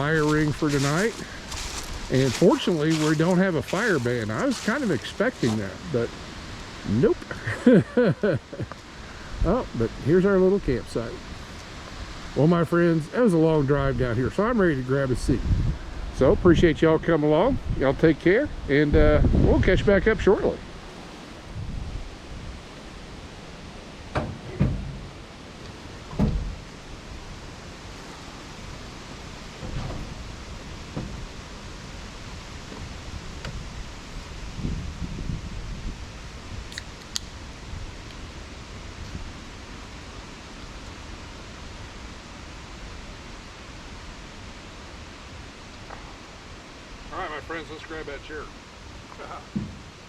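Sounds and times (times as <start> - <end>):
wind: 0.0 - 50.0
wind rumble on microphone: 13.6 - 23.0, 25.8 - 39.6.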